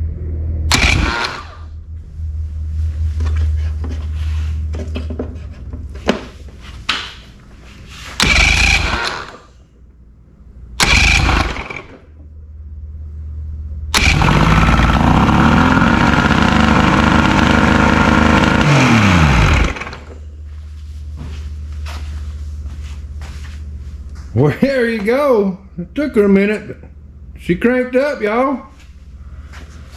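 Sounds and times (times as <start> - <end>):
outboard motor running unevenly: 0.7 - 1.4, 8.2 - 9.3, 10.8 - 11.9, 13.9 - 20.3
outboard motor starter cranking: 0.7 - 1.9, 8.2 - 9.6, 10.8 - 12.3, 13.9 - 20.3.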